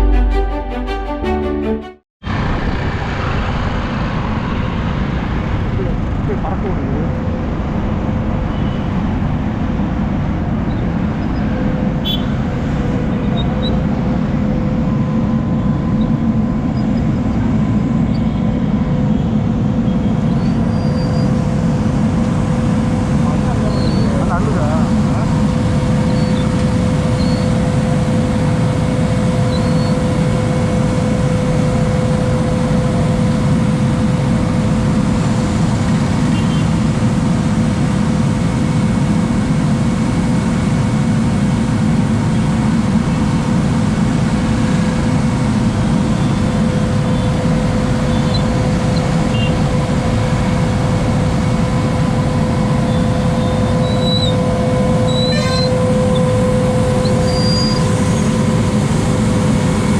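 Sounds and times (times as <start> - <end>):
constant high whine: 2.2 - 59.9
low engine rumble: 2.2 - 59.9.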